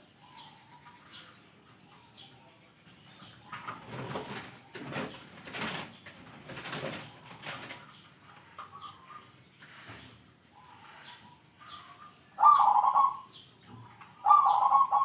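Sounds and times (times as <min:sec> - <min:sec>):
dove wings flapping: 0:03.6 - 0:07.9.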